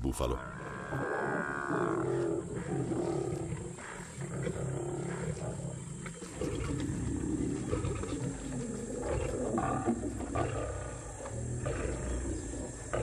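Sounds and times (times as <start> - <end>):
lions growling: 0.4 - 13.0.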